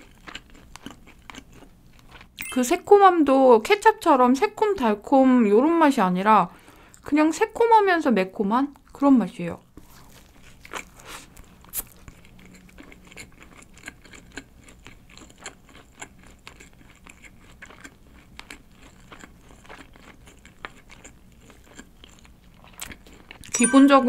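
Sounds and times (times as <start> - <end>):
person chewing food: 0.0 - 2.4, 9.8 - 23.5.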